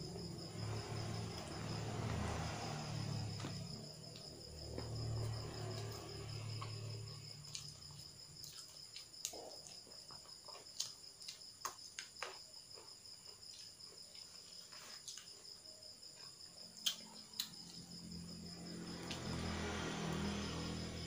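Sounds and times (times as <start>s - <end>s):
crickets chirping: 0.0s - 21.0s
crunches of eating: 3.4s - 18.1s.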